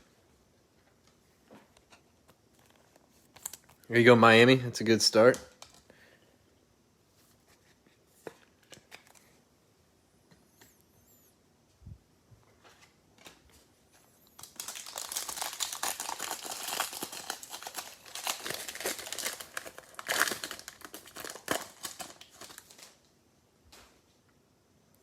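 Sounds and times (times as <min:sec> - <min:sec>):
plastic wrapping torn and crinkled: 0:14.4 - 0:23.1.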